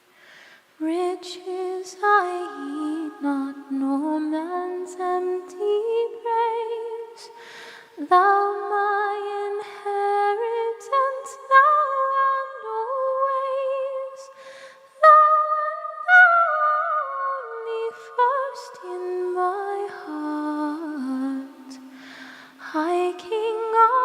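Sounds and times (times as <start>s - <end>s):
singer breathing: 0.0s - 0.8s, 7.3s - 8.0s, 14.3s - 15.0s, 21.8s - 22.6s
a cappella hymn singing: 0.8s - 14.4s, 15.0s - 24.0s.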